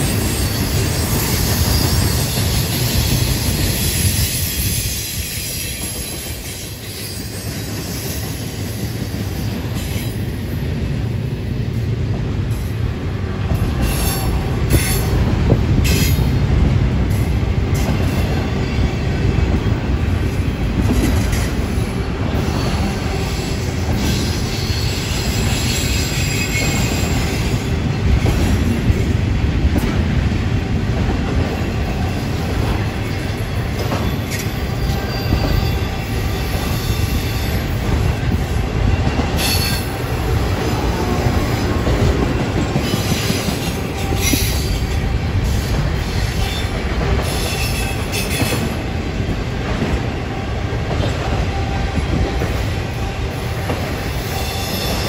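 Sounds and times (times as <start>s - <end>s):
train wheels rolling on rail: 0.0s - 55.0s
high-pitched wheel squeals: 23.4s - 27.5s, 39.2s - 39.9s, 54.2s - 55.0s.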